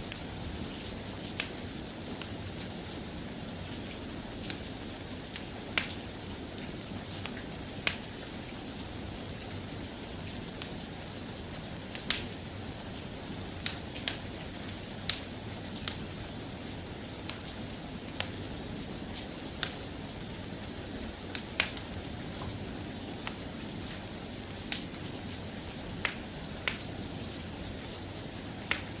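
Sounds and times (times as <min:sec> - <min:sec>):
soft rain: 0:00.0 - 0:29.0
sharp ticks and pops: 0:28.7 - 0:29.0.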